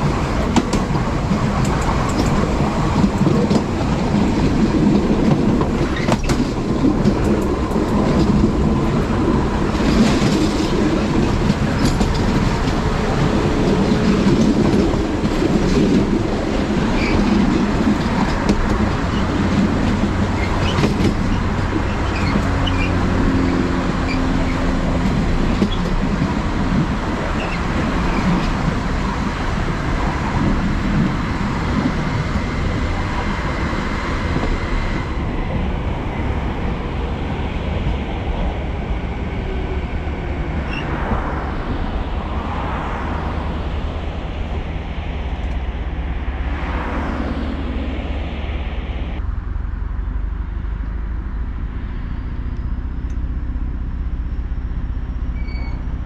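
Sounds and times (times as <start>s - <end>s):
wheels clattering over rail joints: 0.0s - 42.1s
train wheels rumbling: 0.0s - 56.0s.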